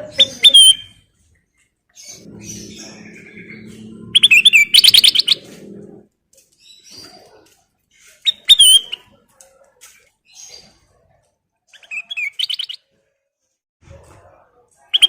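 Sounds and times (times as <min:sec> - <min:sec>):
bulbul singing: 0:02.0 - 0:06.0.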